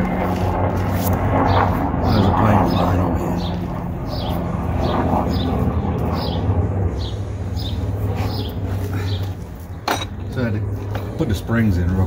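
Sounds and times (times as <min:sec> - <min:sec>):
steady low hum: 0:00.0 - 0:12.0
bird chirping: 0:01.5 - 0:09.4.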